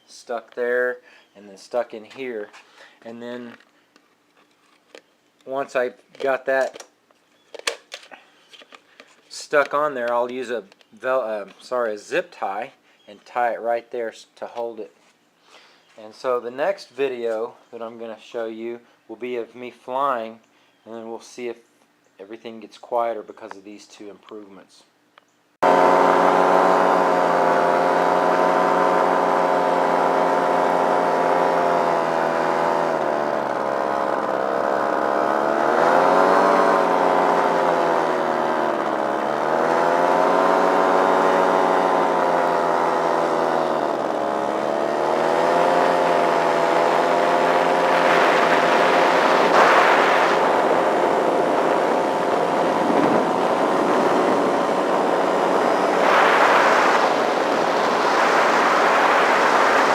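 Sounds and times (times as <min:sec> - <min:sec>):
paramotor engine running: 0:25.6 - 0:59.9
rushing noise: 0:47.9 - 0:51.0, 0:55.4 - 0:59.9.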